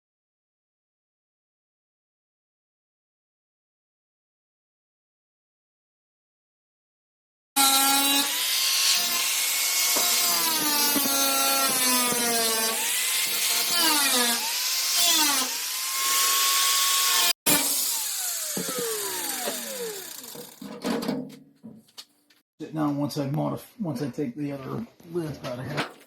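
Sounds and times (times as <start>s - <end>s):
power tool grinding sheet metal: 7.6s - 21.2s.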